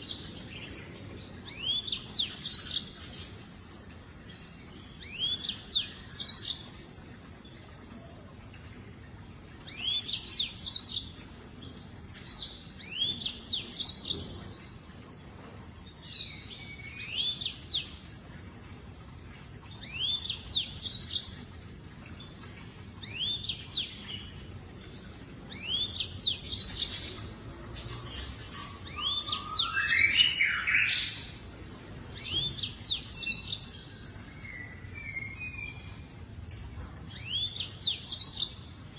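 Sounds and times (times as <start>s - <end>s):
canary singing chirps: 24.9s - 31.4s.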